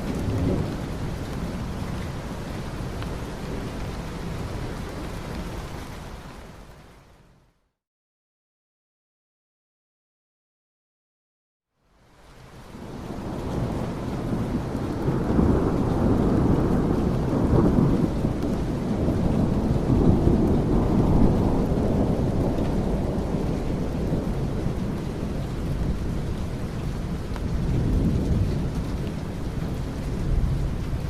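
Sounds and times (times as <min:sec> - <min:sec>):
rolling thunder: 0:00.0 - 0:05.1, 0:12.8 - 0:31.0
steady rain: 0:00.0 - 0:07.6, 0:11.7 - 0:31.0.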